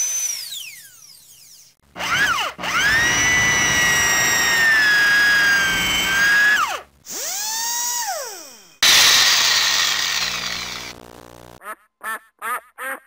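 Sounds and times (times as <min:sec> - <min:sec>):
electric drill motor whining: 0:02.0 - 0:11.1.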